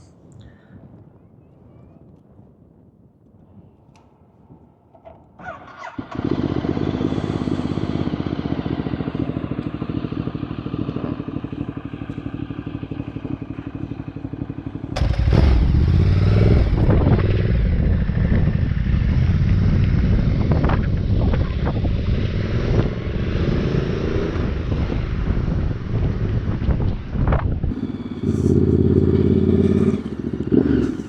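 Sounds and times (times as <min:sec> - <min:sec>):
wind noise: 0:00.0 - 0:11.6, 0:12.6 - 0:31.0
motorcycle engine idling: 0:05.4 - 0:22.1, 0:24.4 - 0:31.0.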